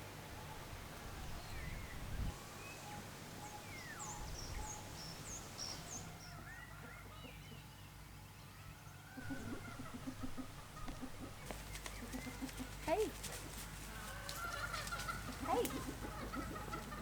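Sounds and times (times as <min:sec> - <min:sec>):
birds whistling and chirping: 0:01.4 - 0:07.6.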